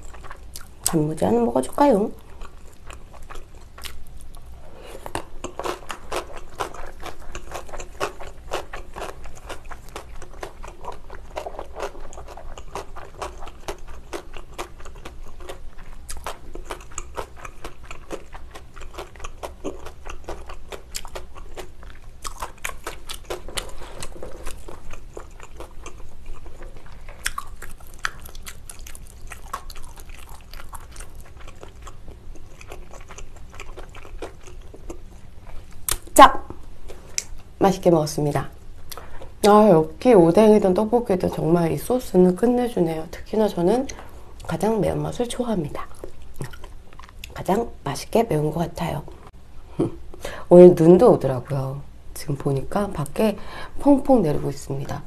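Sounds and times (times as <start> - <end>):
crisp wet chewing crunches: 2.2 - 36.1, 45.8 - 47.4.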